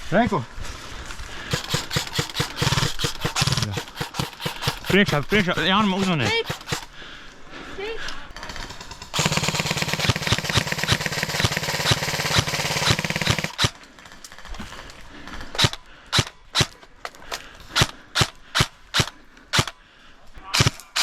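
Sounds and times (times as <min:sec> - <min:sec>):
airsoft gun full-auto burst: 0:01.4 - 0:06.9, 0:08.4 - 0:14.6.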